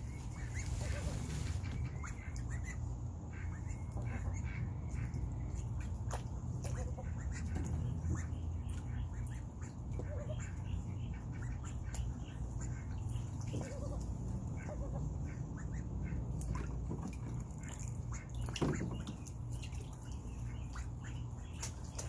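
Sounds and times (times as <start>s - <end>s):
low steady hum: 0.0s - 22.0s
ducks quacking: 0.1s - 22.0s.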